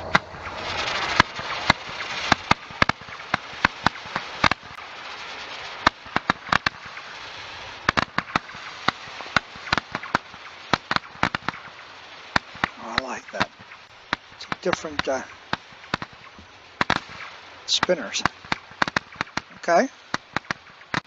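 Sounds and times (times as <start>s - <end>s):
firework cracks and pops: 0.0s - 21.0s
firework hiss: 0.0s - 21.0s.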